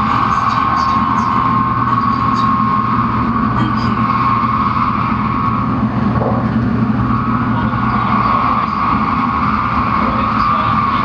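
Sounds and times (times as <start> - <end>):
train cabin rumble and hum: 0.0 - 11.0.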